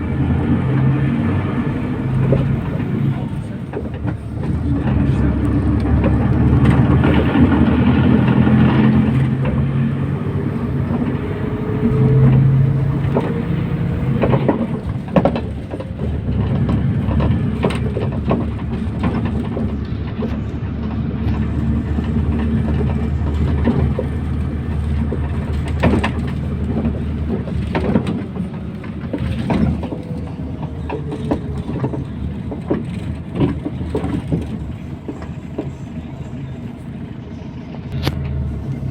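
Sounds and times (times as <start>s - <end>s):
bus engine running: 0.0s - 38.9s
road noise: 0.0s - 38.9s
knocks and rattles: 10.8s - 35.7s.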